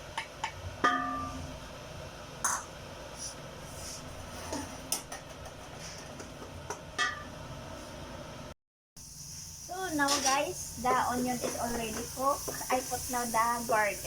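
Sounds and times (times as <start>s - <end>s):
onion frying in oil: 9.0s - 14.0s.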